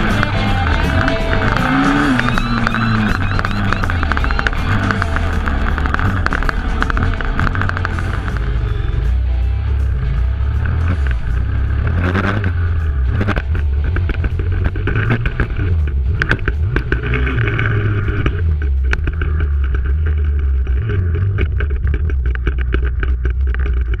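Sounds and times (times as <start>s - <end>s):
pit bike engine running: 0.0s - 24.0s
knocks and rattles: 10.0s - 24.0s.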